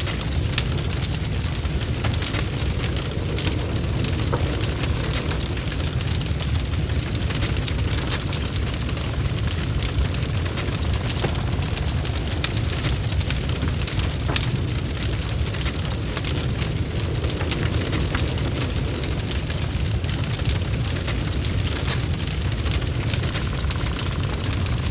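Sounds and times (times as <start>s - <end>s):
low rumble of flames: 0.0s - 24.9s
wood fire crackling and popping: 0.0s - 24.9s.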